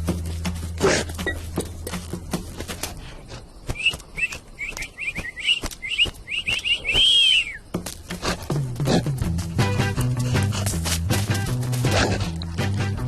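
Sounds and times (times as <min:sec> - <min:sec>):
high bird-like chirps: 0:03.6 - 0:07.7
rising and falling whistle: 0:03.8 - 0:07.6.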